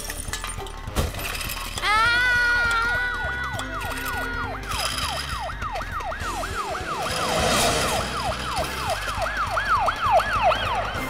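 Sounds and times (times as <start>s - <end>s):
cartoon ambulance siren wailing: 2.0s - 11.0s
brief rushing noise: 6.8s - 8.6s.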